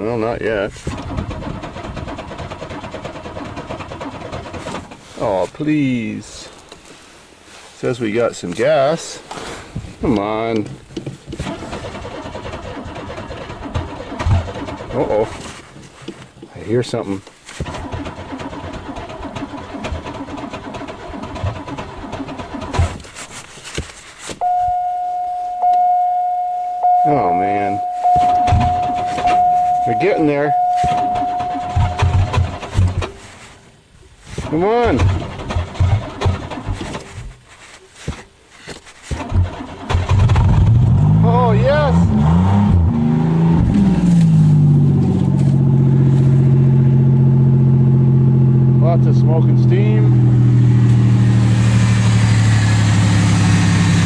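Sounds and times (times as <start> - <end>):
starter cranking engine: 0.8 - 5.0, 11.3 - 15.6, 17.6 - 23.2, 26.8 - 33.3, 34.4 - 37.3, 39.0 - 48.4
loud steady high tone: 24.4 - 32.4
car engine revving and idling: 24.5 - 33.0, 40.0 - 54.0.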